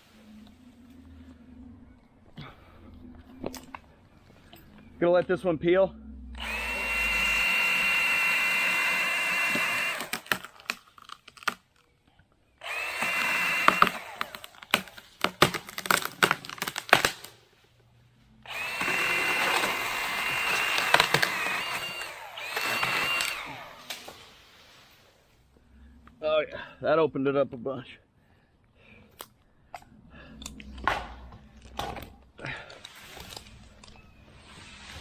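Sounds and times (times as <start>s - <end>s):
battery saw whining: 6.2s - 10.7s, 12.6s - 14.7s, 18.4s - 24.3s
wood cracking and snapping: 9.6s - 11.9s, 13.6s - 17.4s.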